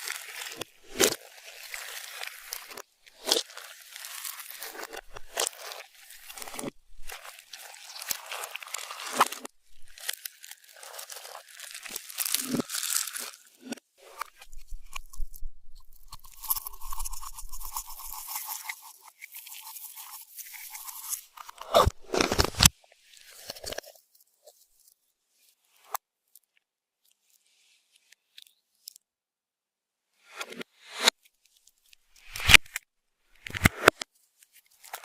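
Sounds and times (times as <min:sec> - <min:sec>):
crunchy slime squishing: 0:00.0 - 0:22.7.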